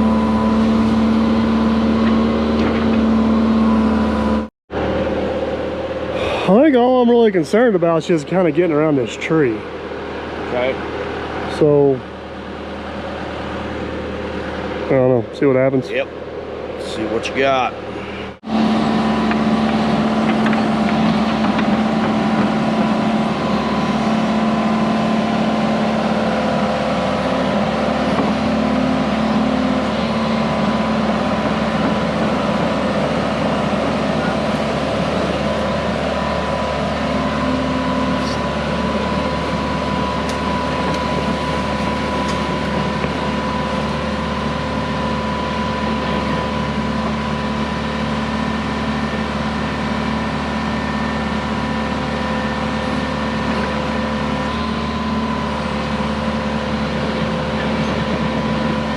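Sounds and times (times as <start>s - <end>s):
heavy equipment engine droning: 0.0s - 58.9s.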